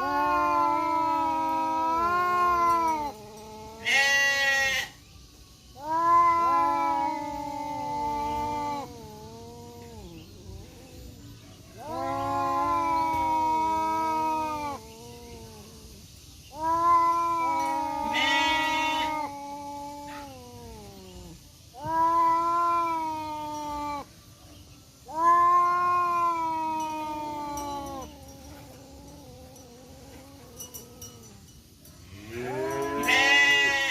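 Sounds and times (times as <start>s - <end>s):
cats yowling: 0.0s - 5.0s, 5.7s - 24.1s, 25.0s - 33.9s.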